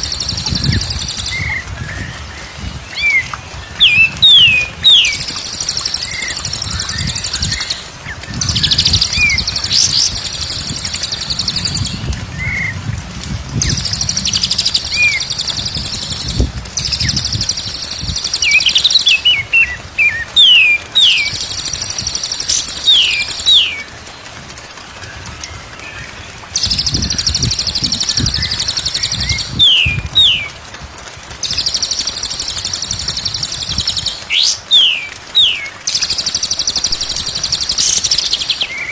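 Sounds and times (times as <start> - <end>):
birds buzzing trill: 0.0 - 12.1, 13.6 - 23.8.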